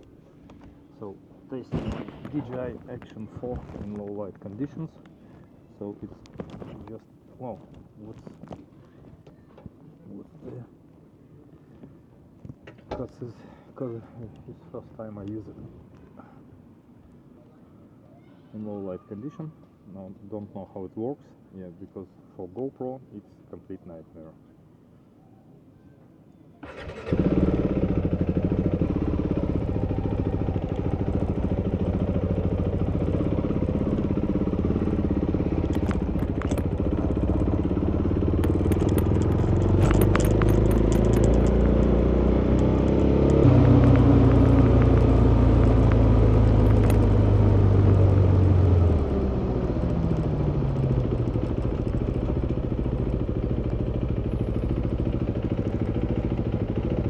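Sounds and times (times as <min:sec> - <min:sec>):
motorcycle engine running: 0:26.7 - 0:57.0
light clicking and rattling: 0:28.0 - 0:57.0.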